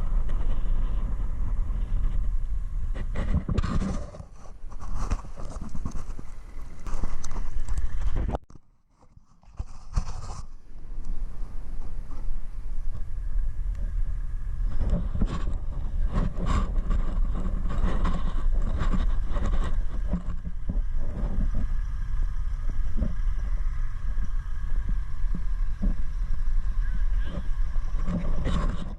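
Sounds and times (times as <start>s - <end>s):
faint steady whine: 0.0s - 28.9s
truck engine rumbling: 10.6s - 28.9s.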